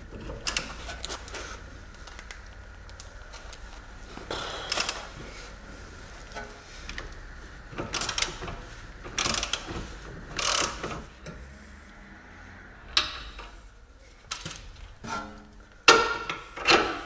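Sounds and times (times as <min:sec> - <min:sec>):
ratchet wrench clicking: 0:07.8 - 0:09.7, 0:10.4 - 0:10.9.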